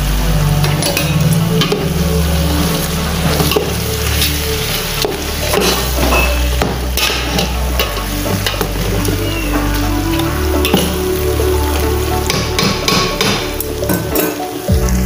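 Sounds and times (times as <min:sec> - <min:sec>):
chicken sizzling in a pot: 0:00.8 - 0:09.6.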